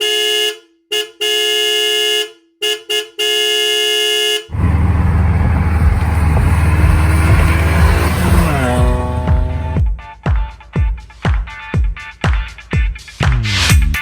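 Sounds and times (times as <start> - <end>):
car horn honking: 0.0 - 9.8
bass-heavy music: 4.5 - 10.0, 13.0 - 14.0.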